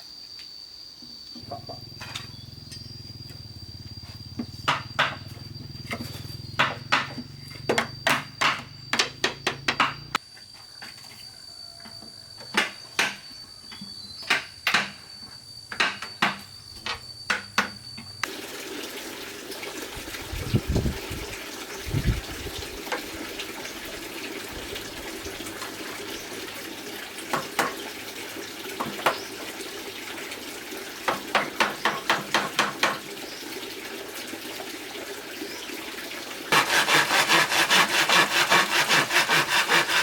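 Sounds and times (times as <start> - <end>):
high-pitched insect drone: 0.0 - 18.4
sharp knocks and taps: 6.6 - 10.1.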